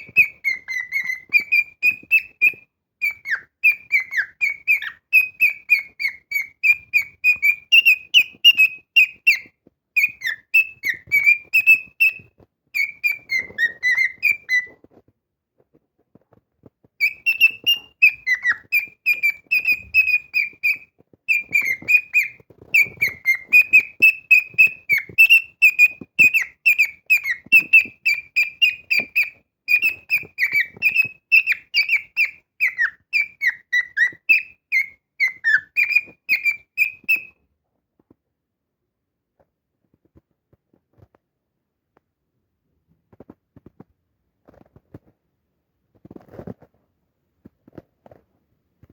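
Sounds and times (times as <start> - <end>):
cockatiel whistling song: 0.0 - 15.0, 17.0 - 37.4.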